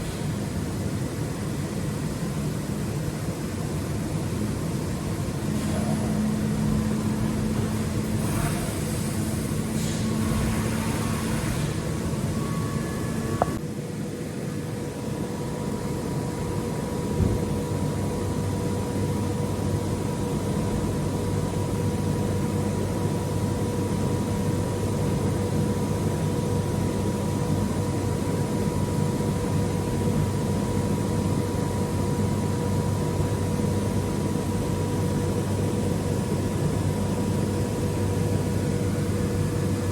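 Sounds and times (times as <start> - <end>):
machine hum with whine: 0.0 - 39.9
hiss: 8.2 - 12.0.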